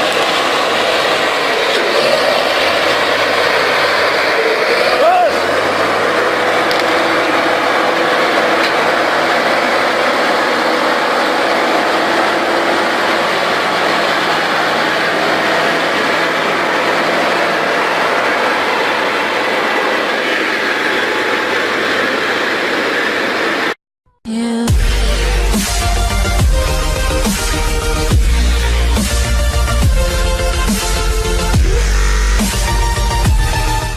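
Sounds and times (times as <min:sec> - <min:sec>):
heavy diesel engine running: 0:00.0 - 0:23.8, 0:24.7 - 0:33.9
electronic music: 0:24.7 - 0:33.9.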